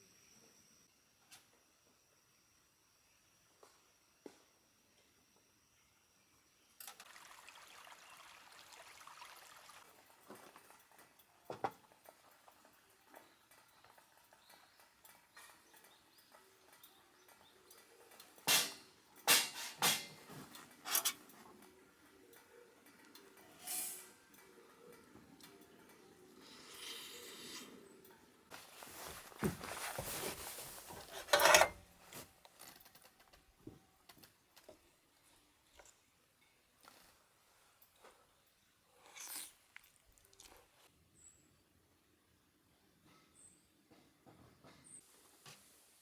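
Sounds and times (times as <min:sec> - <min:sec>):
sharp knocks and clatters: 0:18.4 - 0:21.2
soft rustle: 0:28.5 - 0:33.0.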